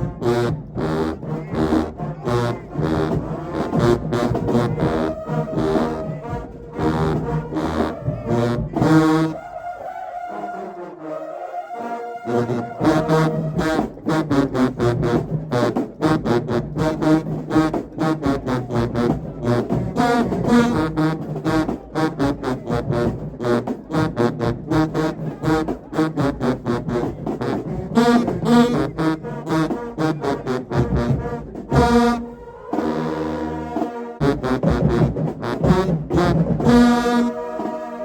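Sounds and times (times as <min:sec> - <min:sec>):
fast driving drum beats: 0:00.0 - 0:09.1, 0:12.8 - 0:32.4, 0:34.2 - 0:37.8
brass horns: 0:00.0 - 0:38.0.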